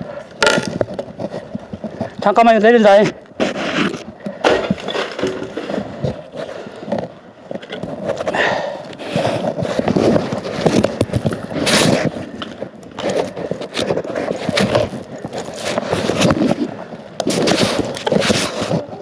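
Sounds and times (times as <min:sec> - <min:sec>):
wood and branches scraping: 0:00.4 - 0:19.0.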